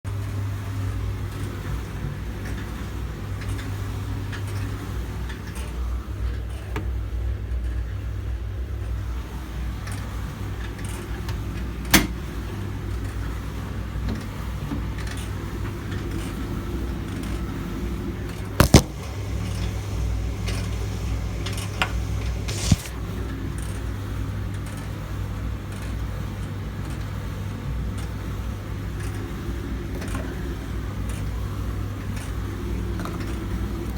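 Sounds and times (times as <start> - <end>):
sharp clicks or knocks: 18.6 - 18.9
vacuum cleaner motor hum: 18.6 - 22.9.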